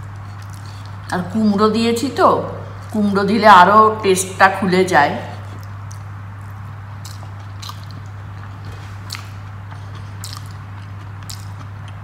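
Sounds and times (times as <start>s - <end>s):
person chewing food: 0.0s - 1.1s, 5.2s - 12.0s
steady low hum: 0.0s - 12.0s
wet mouth clicks: 5.4s - 12.0s.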